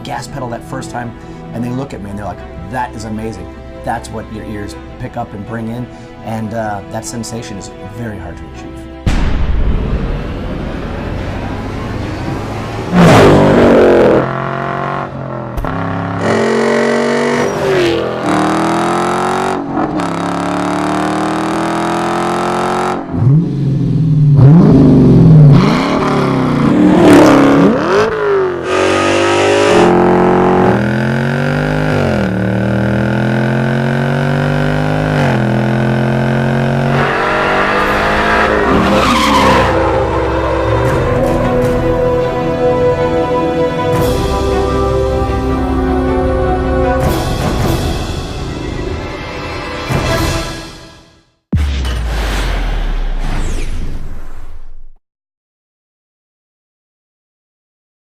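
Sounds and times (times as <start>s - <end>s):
car engines revving and accelerating: 10.3s - 42.2s.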